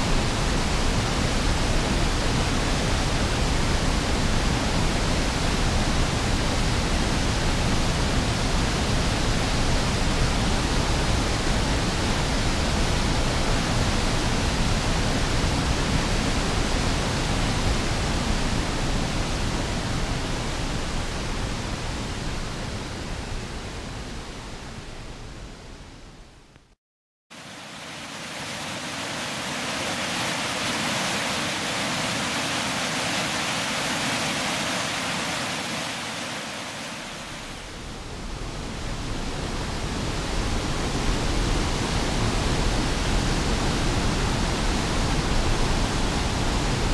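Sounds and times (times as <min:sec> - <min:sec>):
waterfall rushing: 0:27.3 - 0:37.8.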